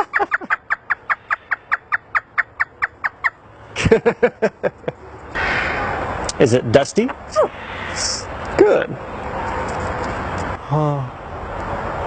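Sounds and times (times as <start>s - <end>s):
parrot imitating laughter: 0.0s - 1.4s.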